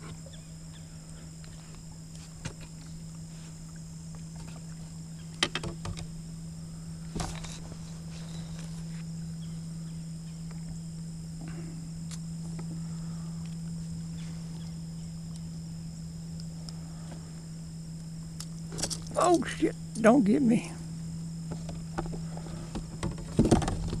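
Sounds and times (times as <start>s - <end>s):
high whine: 0.0s - 24.0s
low hum: 0.0s - 24.0s
knocks and clicks of handling tackle: 4.3s - 6.1s, 7.1s - 7.7s, 21.5s - 24.0s.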